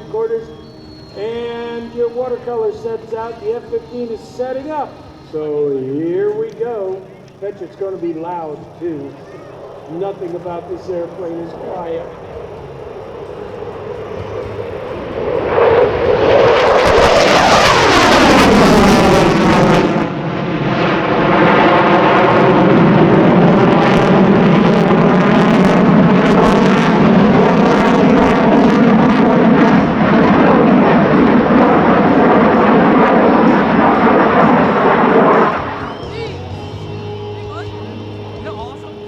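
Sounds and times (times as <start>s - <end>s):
jet afterburner roar: 0.0s - 39.0s
jet crackle: 6.3s - 36.3s.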